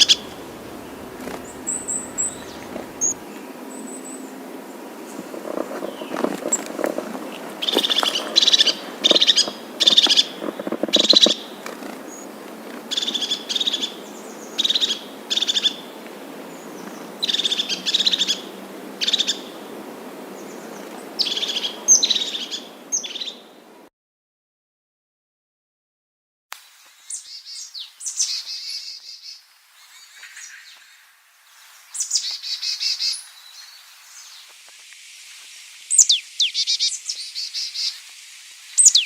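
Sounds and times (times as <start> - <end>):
bird chattering calls: 0.0 - 3.2, 7.5 - 12.2.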